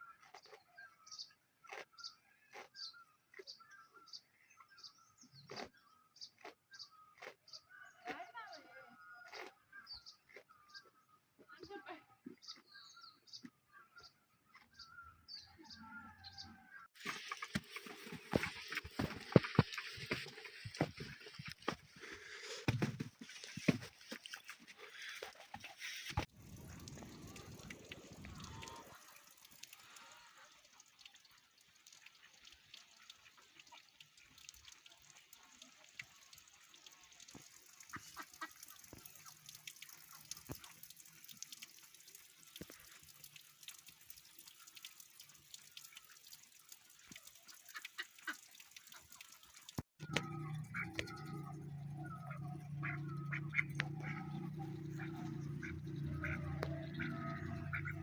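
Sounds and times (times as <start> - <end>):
ducks quacking: 50.0 - 58.0.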